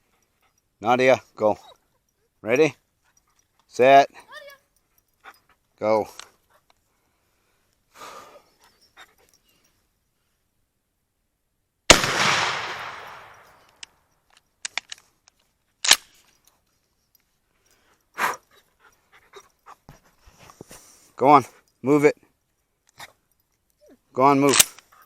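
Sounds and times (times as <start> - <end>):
shotgun blast with echo: 11.9 - 13.5.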